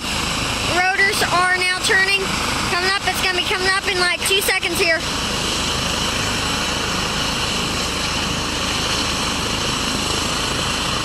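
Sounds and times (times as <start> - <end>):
helicopter rotor noise: 0.0 - 11.0
helicopter turbine whine: 0.0 - 11.0.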